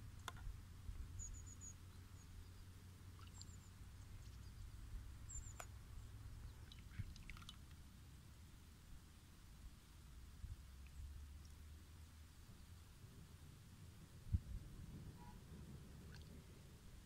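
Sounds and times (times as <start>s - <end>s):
small birds chirping: 0.0s - 7.5s
low background rumble: 0.0s - 17.0s.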